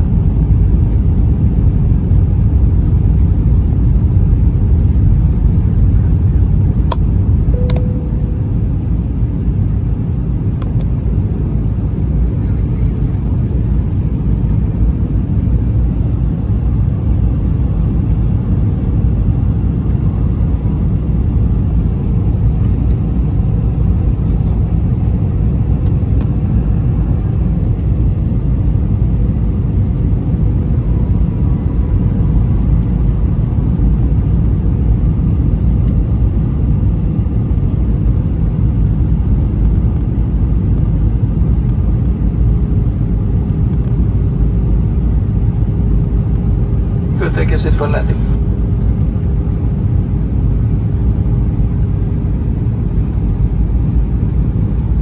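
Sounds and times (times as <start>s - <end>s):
air rushing along fuselage: 0.0s - 11.6s, 44.6s - 55.0s
faint steady hum: 0.0s - 11.6s, 45.0s - 55.0s
jet engines rumbling: 0.0s - 55.0s.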